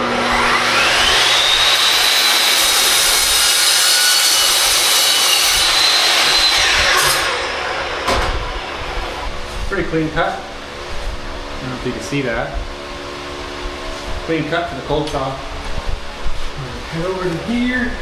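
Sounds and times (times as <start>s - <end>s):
cold saw cutting metal tube: 0.0s - 9.3s.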